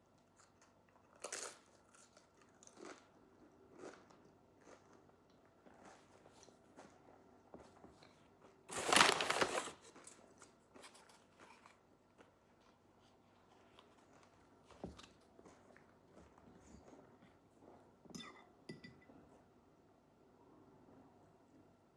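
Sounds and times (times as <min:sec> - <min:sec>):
food wrapper crinkling: 0:08.7 - 0:11.8.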